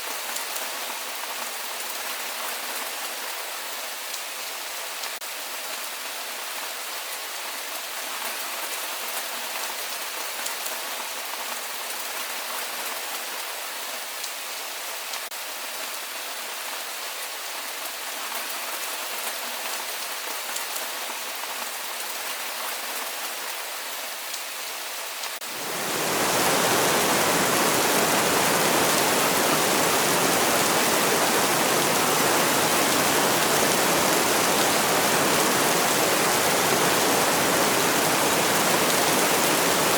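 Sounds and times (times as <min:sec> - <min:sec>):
steady rainfall: 0:00.0 - 0:39.9
heavy rain rushing: 0:25.4 - 0:39.9.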